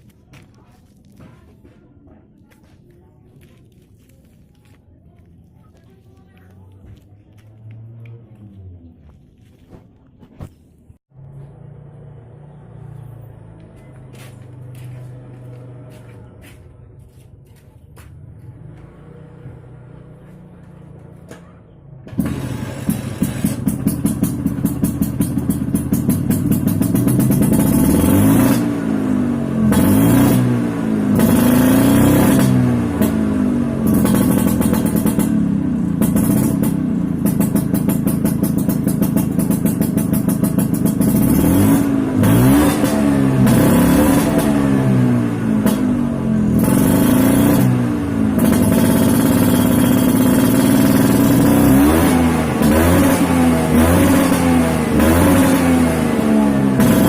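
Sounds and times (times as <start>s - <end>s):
two-stroke scooter engine revving: 18.2s - 21.4s, 22.0s - 57.0s.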